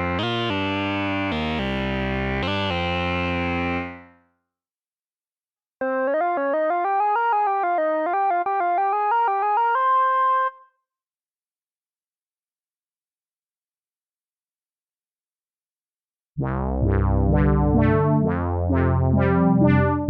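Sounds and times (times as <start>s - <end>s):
synthesizer fast note run: 16.7s - 20.0s.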